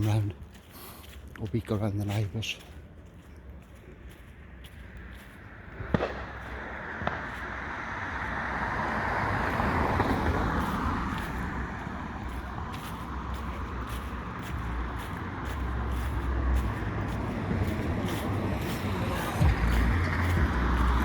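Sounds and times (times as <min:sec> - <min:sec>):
car passing: 0:03.9 - 0:21.0
firework cracks: 0:05.7 - 0:10.9.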